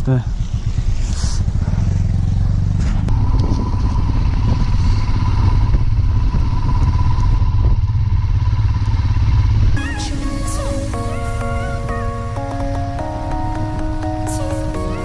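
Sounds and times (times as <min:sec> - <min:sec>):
motorcycle engine running: 0:00.0 - 0:15.0
background music: 0:09.8 - 0:15.0.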